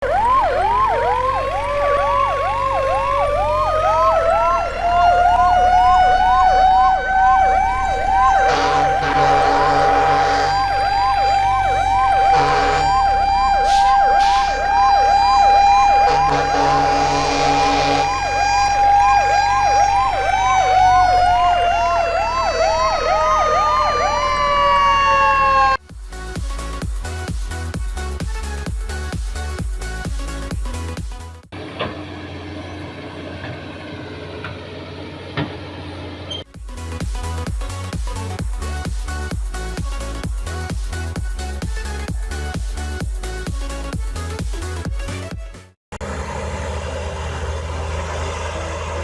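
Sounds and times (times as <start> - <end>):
electronic siren wailing: 0.0 - 25.8
electronic music with steady beat: 8.5 - 17.4, 25.8 - 31.5, 36.5 - 45.8.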